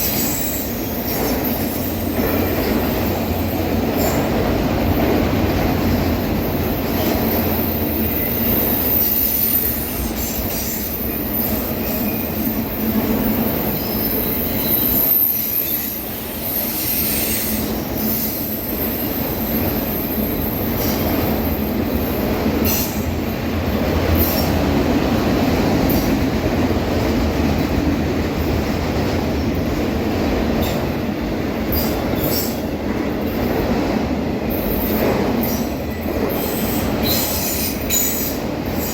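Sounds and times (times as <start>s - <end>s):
freight train rumbling on rails: 0.0s - 38.9s
high-pitched wheel squeal: 13.3s - 20.4s.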